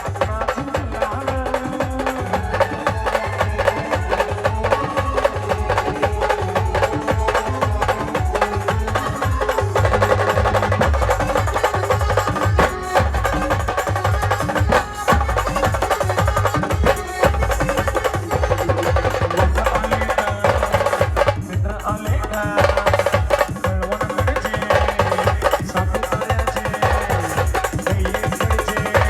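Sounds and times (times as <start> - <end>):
band melody line: 0.0 - 29.0
heavy drum beats: 0.0 - 29.0.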